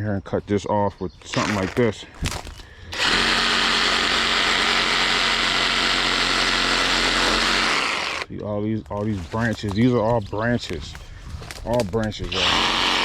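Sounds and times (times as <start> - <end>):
reciprocating saw running: 2.9 - 8.3, 12.3 - 13.0.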